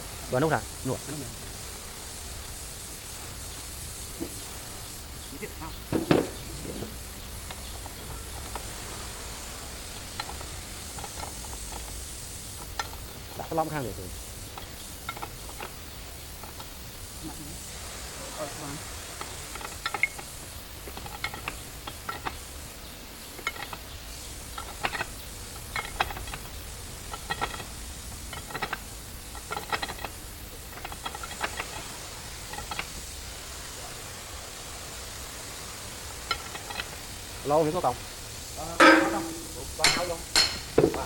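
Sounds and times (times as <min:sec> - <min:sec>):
low hum and hiss: 0:00.0 - 0:41.0
light metallic clinks and taps: 0:19.2 - 0:20.3, 0:23.4 - 0:23.9, 0:38.8 - 0:41.0.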